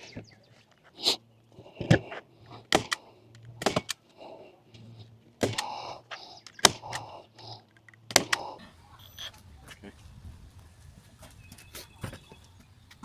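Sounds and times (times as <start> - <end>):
sharp knocks and clicks: 7.8 - 8.4.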